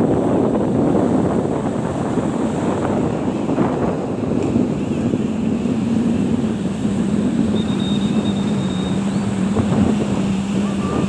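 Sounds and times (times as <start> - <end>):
boat engine droning: 0.0 - 11.0
wind rumble on microphone: 0.0 - 11.0
faint high whistle: 7.5 - 9.3, 10.6 - 11.0.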